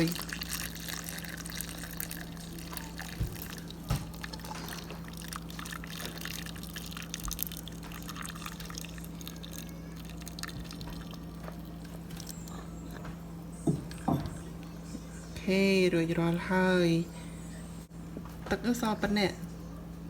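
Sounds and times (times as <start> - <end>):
liquid pouring into jar: 0.0 - 12.6.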